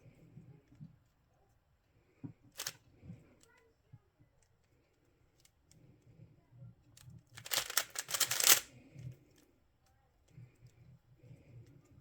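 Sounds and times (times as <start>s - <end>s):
puzzle cube clicking: 7.4s - 8.7s.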